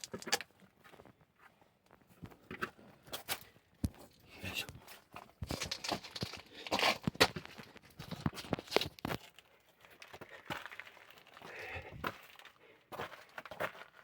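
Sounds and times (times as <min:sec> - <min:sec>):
person scraping through cave: 0:05.6 - 0:07.4.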